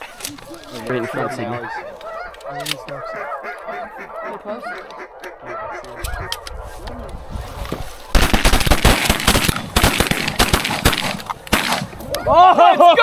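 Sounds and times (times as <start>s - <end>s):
geese honking: 0.0s - 12.4s
shotgun fire: 8.2s - 12.0s.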